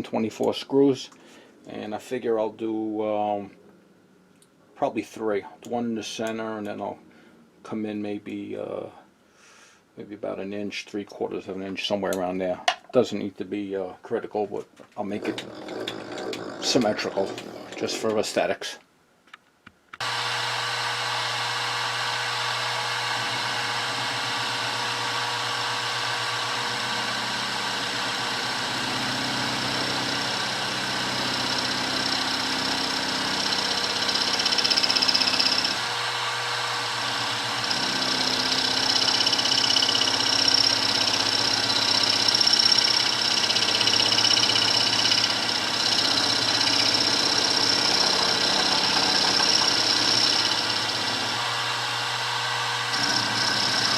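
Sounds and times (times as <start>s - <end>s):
end mill cutting whine: 15.1s - 18.2s, 20.0s - 53.9s
milling machine motor running: 15.2s - 18.0s, 20.0s - 53.9s.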